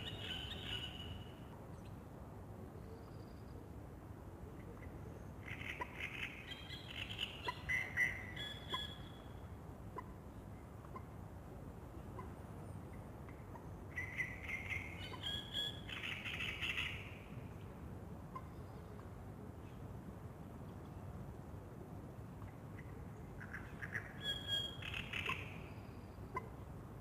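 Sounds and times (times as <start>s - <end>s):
songbird warbling: 23.4s - 25.6s.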